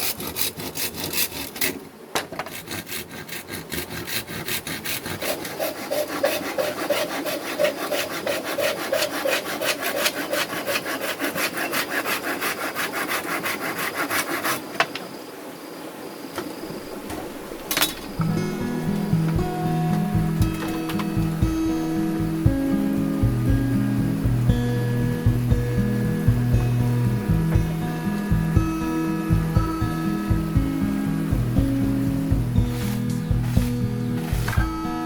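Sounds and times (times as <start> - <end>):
hand saw cutting wood: 0.0 - 14.9, 31.5 - 35.0
music: 18.0 - 35.0.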